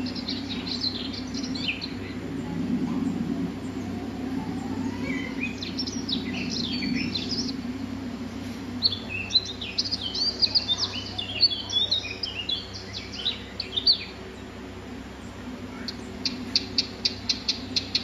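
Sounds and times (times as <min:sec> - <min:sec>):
low steady hum: 0:00.0 - 0:18.0
songbirds chirping and twittering: 0:00.0 - 0:18.0.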